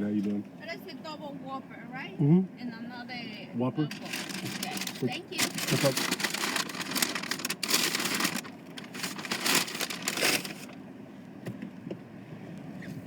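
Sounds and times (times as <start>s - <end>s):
paper bag rustling and crinkling: 3.9s - 10.8s.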